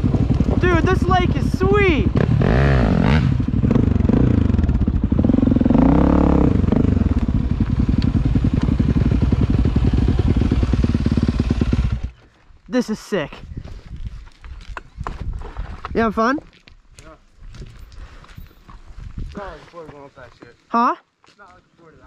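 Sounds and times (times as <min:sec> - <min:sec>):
dirt bike engine revving: 0:00.0 - 0:12.2.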